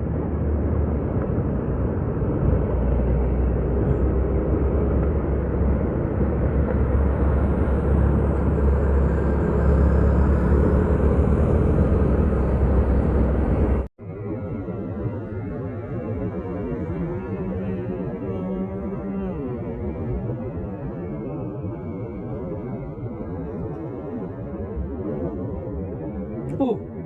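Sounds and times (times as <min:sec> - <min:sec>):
motorcycle road and wind noise: 0:00.0 - 0:14.2.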